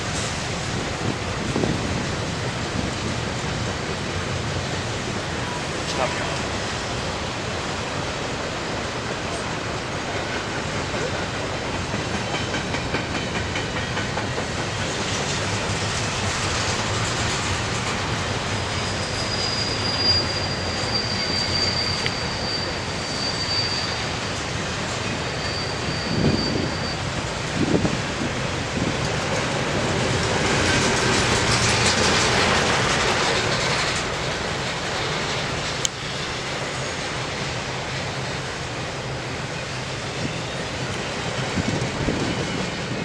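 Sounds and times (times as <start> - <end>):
train wheels on rails: 0.0 - 43.0
high wheel squeal: 18.3 - 28.0, 39.4 - 43.0.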